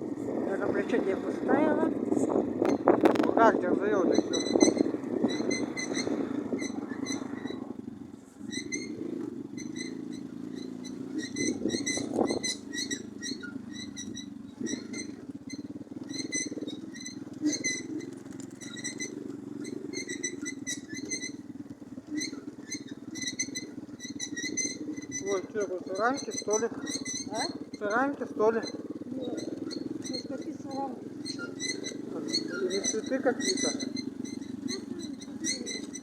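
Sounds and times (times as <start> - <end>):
moped engine running: 0.0 - 36.0
high squeaky chirps: 0.8 - 36.0.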